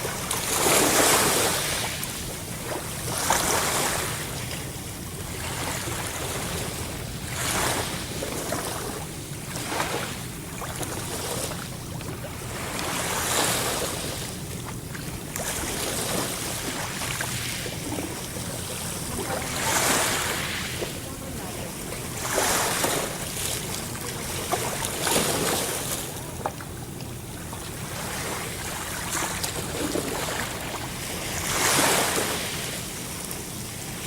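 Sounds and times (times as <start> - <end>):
sea waves breaking: 0.0 - 34.0.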